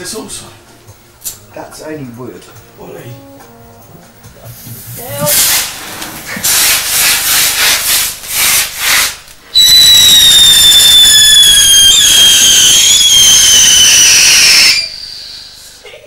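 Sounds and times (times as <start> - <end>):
firework hissing: 4.8 - 15.8
firework whistle falling in pitch: 9.5 - 15.5.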